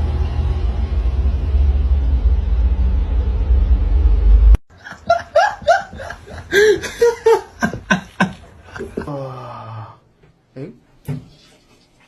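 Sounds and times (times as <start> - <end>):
loud low rumble: 0.0 - 4.6.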